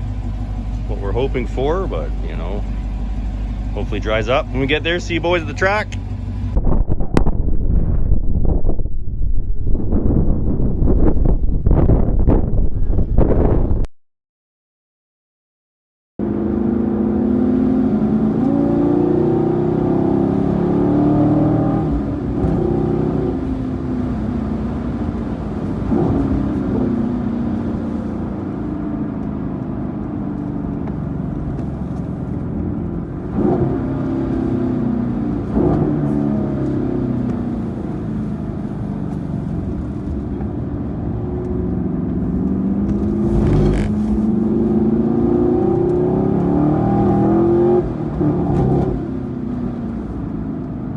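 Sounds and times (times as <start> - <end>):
car engine accelerating: 0.0 - 7.5, 16.2 - 50.9.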